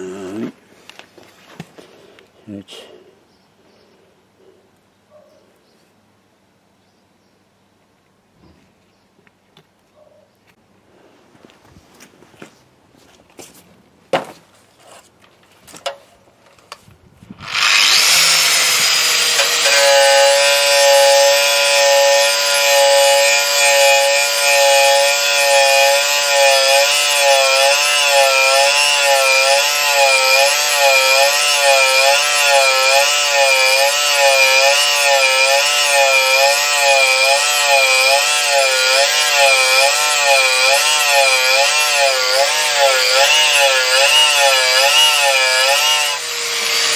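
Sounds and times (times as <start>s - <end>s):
power tool running under load: 17.4s - 46.9s.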